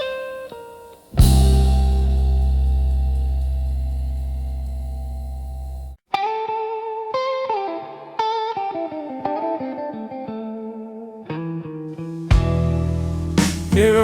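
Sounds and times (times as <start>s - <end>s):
electric guitar blues lead: 0.0s - 5.0s, 6.1s - 14.0s
sustained guitar chord: 1.1s - 6.0s.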